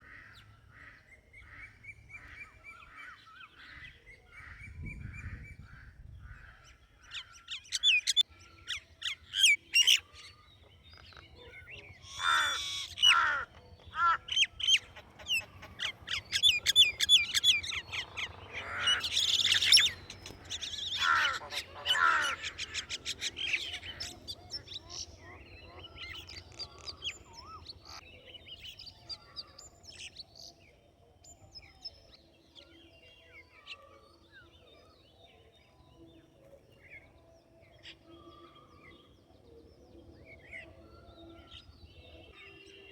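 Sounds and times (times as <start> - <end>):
birds chirping: 0.0 - 42.9
harsh bird calls: 11.0 - 28.0.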